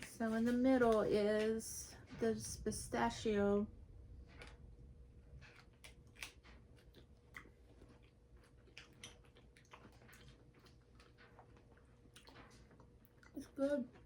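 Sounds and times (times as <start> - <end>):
chewing crunchy chocolate: 4.2 - 14.0.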